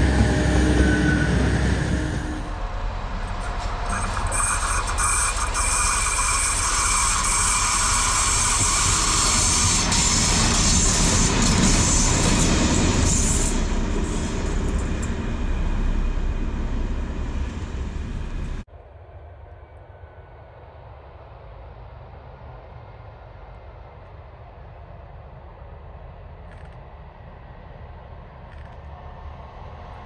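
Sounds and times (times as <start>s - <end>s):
train wheels rumbling on rail: 0.0s - 30.0s
thin high squealing: 3.6s - 12.4s.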